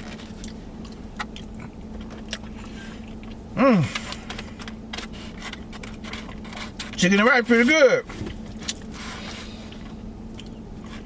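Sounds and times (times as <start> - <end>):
steady low hum: 0.0 - 11.0
man humming mm of enjoyment: 3.6 - 4.0.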